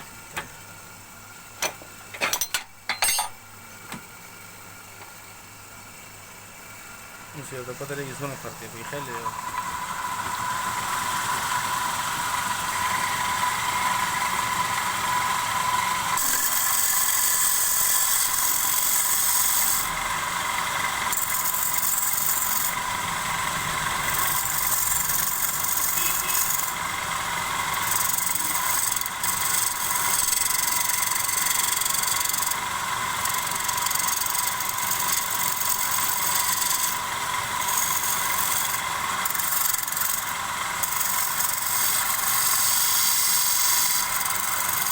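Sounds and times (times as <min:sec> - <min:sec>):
lathe motor whine: 0:07.5 - 0:44.9
tool scraping spinning wood: 0:16.2 - 0:19.9, 0:20.6 - 0:44.9.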